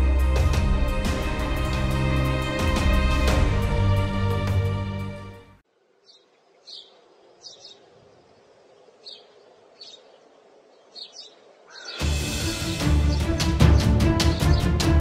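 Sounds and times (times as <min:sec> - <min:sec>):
loud music: 0:00.0 - 0:05.5, 0:12.0 - 0:15.0
faint outdoor background: 0:00.0 - 0:15.0
birds chirping: 0:05.9 - 0:15.0.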